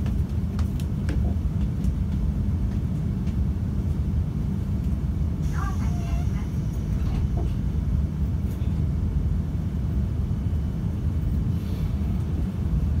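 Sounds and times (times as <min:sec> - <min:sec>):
train cabin rumble: 0:00.0 - 0:13.0.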